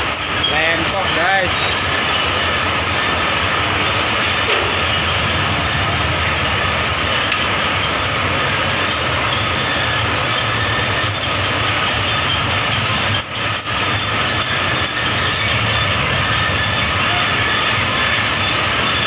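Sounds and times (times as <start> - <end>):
factory machinery rumble and hiss: 0.0 - 19.0.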